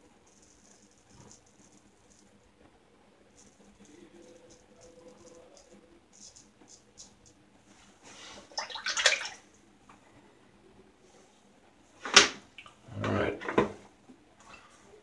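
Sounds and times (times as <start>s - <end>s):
water splashing: 8.5s - 9.5s.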